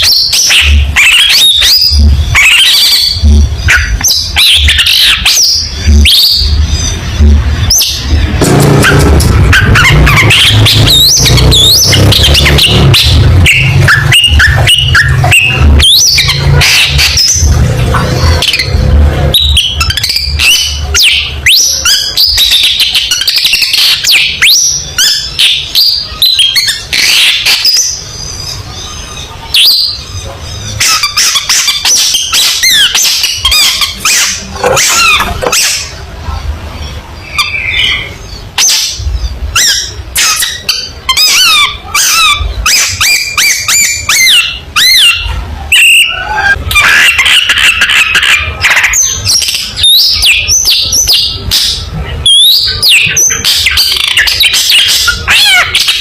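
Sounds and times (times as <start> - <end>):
bird singing chattering chirps: 0.0 - 36.0
low rumble: 5.6 - 19.9.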